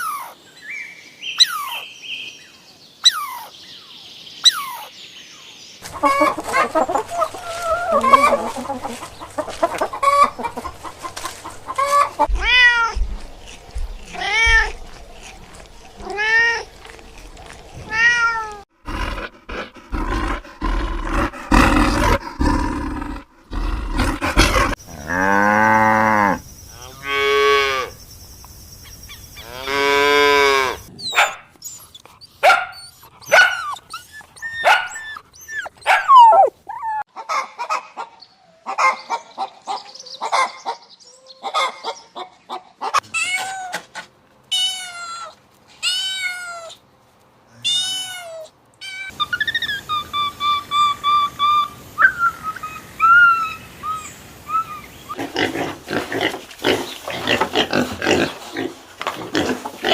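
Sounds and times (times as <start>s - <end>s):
high chirps and squeaks: 31.0s - 37.0s.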